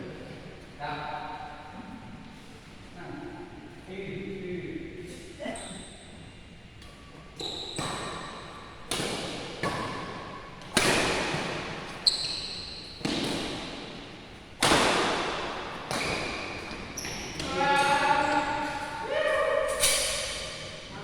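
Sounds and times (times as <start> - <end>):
rackets hitting shuttlecock: 7.7 - 12.0, 12.6 - 18.8.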